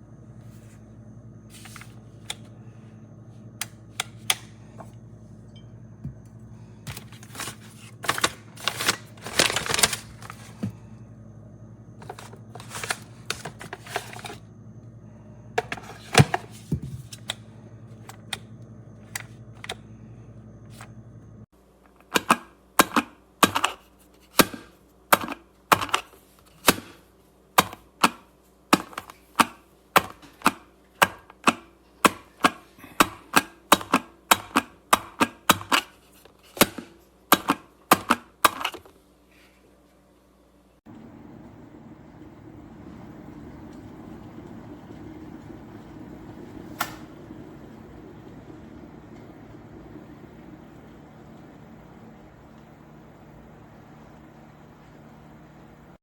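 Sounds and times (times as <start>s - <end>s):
steady low hum: 0.0s - 21.5s, 40.4s - 56.0s.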